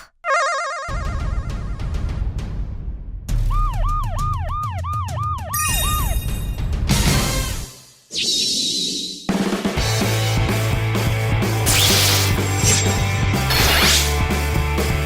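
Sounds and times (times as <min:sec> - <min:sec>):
police siren wailing: 0:03.5 - 0:06.4.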